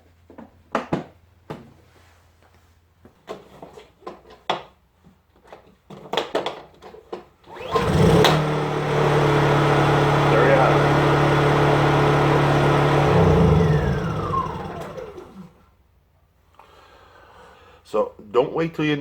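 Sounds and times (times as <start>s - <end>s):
generator engine running: 7.5s - 15.6s.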